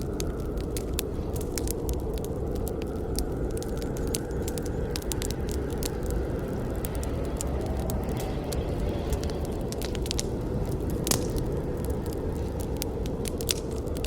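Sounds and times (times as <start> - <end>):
fire crackling and popping: 0.0 - 14.0
wood fire burning: 0.0 - 14.0.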